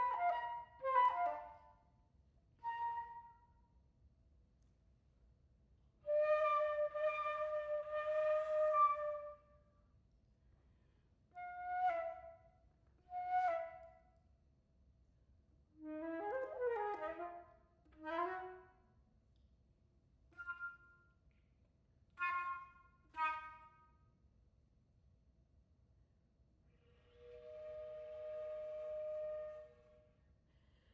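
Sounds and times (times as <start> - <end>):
solo flute playing: 0.0 - 1.7, 6.1 - 9.5, 11.4 - 12.5, 15.8 - 18.8, 22.2 - 23.8, 26.8 - 30.2.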